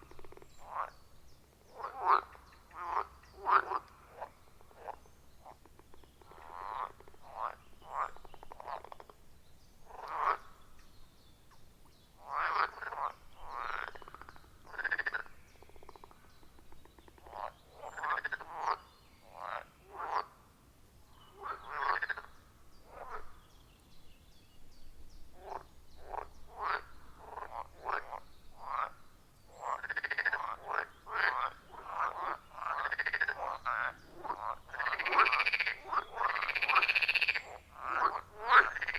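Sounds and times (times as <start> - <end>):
frogs croaking: 0.0 - 10.9, 12.2 - 20.5, 21.1 - 23.4, 25.3 - 38.9.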